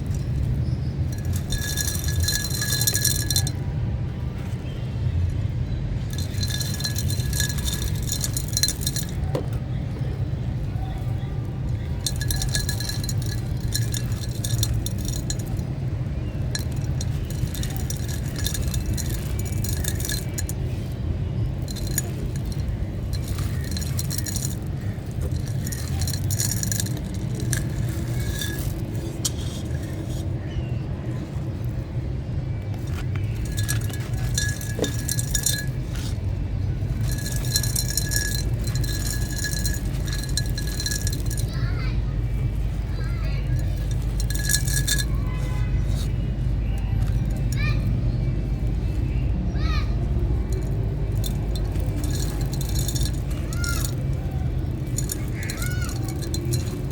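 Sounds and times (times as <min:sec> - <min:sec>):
small clinks of falling pieces: 0:00.0 - 0:03.6, 0:06.1 - 0:09.6, 0:10.7 - 0:20.9, 0:21.5 - 0:30.3, 0:32.7 - 0:47.9, 0:50.4 - 0:56.9
steady low rumble: 0:00.0 - 0:56.9
dry clay chunks crumbling: 0:32.7 - 0:41.6.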